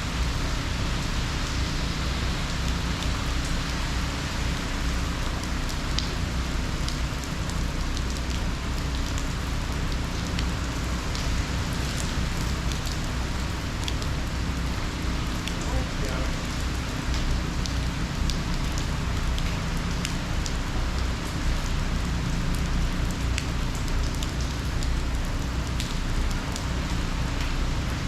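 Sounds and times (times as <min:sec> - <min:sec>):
heavy rain hissing: 0:08.4 - 0:23.2.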